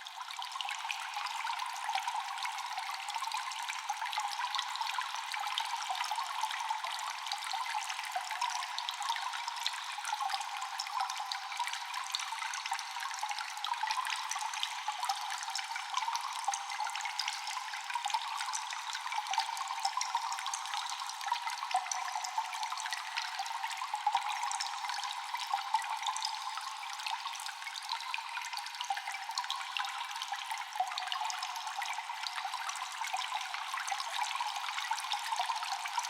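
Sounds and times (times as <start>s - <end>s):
echoing water trickling: 0.0s - 36.0s
small quick water drips: 0.0s - 36.0s.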